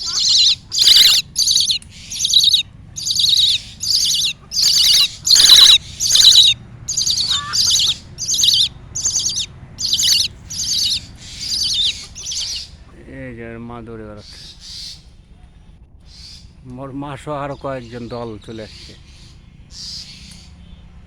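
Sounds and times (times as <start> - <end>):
birds chirping harshly: 0.0 - 12.8.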